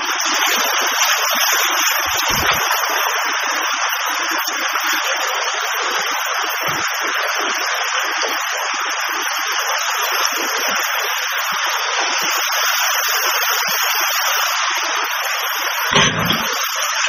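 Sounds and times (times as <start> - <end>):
floodwater rushing: 0.1 - 4.2.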